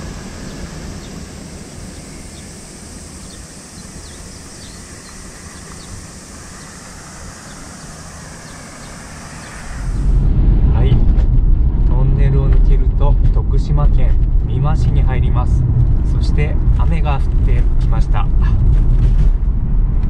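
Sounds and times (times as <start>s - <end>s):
steady high-pitched hiss: 0.0s - 10.9s
bird chirps: 0.3s - 10.0s.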